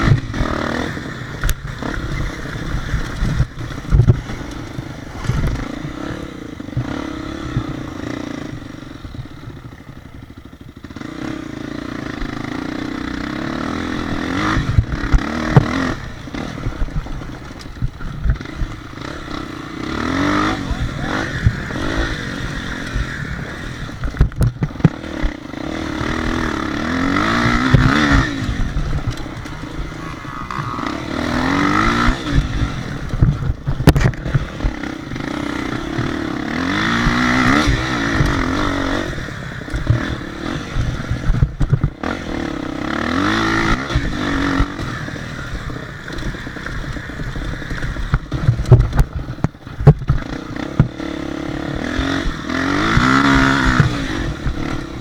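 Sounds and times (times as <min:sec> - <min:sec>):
dirt bike engines revving: 0:00.0 - 0:55.0
thumps and rattles: 0:01.4 - 0:05.7, 0:23.9 - 0:25.4, 0:32.0 - 0:34.8, 0:40.8 - 0:42.0, 0:46.1 - 0:51.0.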